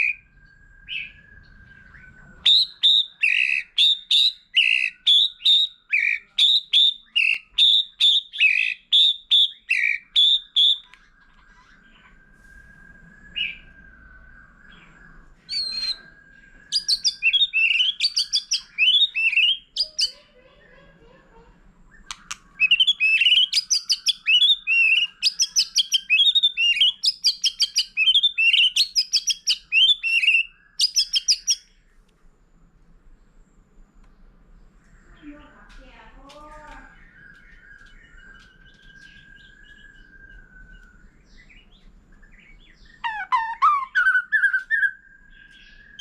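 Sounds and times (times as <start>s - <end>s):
bird singing chirps and whistles: 0.0s - 11.2s, 11.8s - 20.2s, 21.9s - 31.8s, 36.6s - 46.0s
short bird calls: 0.0s - 31.8s.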